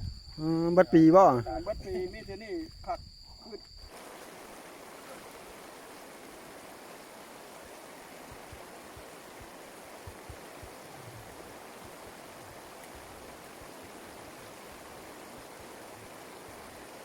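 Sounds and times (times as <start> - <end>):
running water: 3.8 - 17.0.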